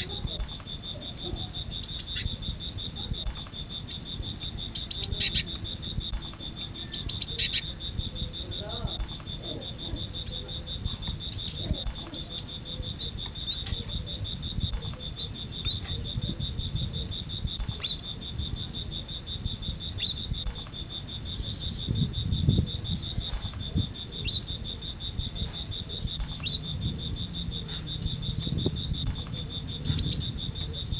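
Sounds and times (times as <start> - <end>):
pulsing insect trill: 0.0 - 30.9
bird singing sharp rising notes: 22.7 - 30.9.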